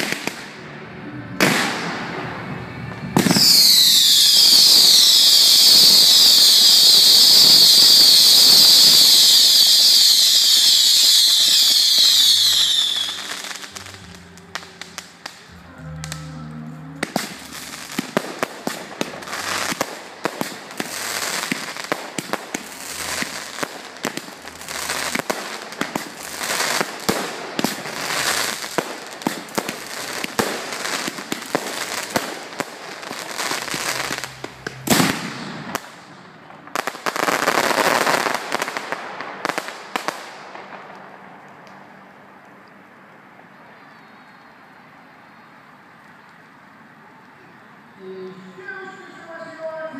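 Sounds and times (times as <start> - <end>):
firework crackling and hiss: 0.0 - 0.6, 1.4 - 16.2, 17.0 - 42.1
loud firework bang: 1.4 - 6.4, 33.3 - 36.0.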